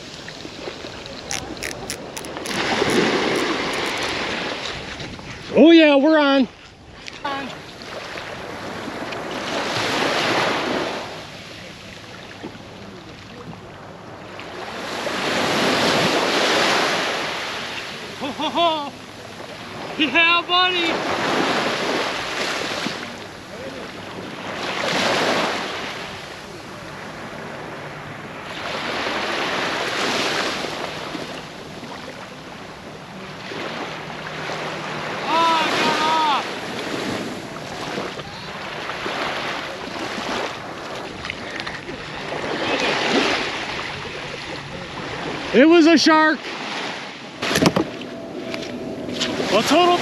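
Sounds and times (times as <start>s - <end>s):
ocean waves breaking: 0.0s - 50.0s.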